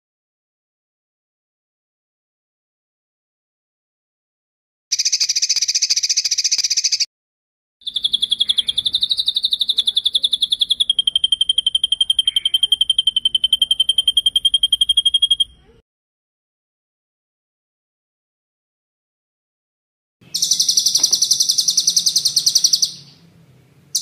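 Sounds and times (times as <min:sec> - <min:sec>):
songbird trilling: 0:04.9 - 0:07.1, 0:07.8 - 0:15.8, 0:20.2 - 0:23.3.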